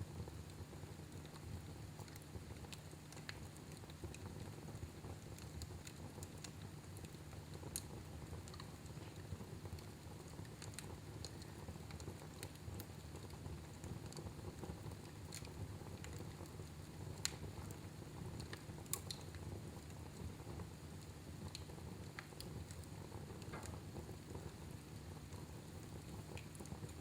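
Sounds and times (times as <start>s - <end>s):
fire crackling: 0.0s - 27.0s.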